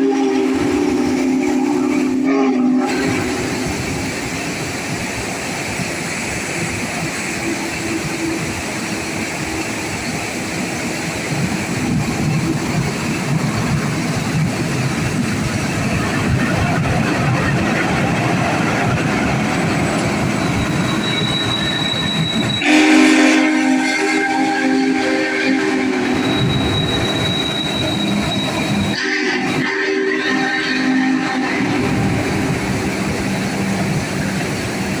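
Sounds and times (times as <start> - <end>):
train chime whistle: 0.0 - 3.4, 20.0 - 32.5
train wheels rumbling: 0.0 - 35.0
high-pitched squeal: 15.6 - 34.4.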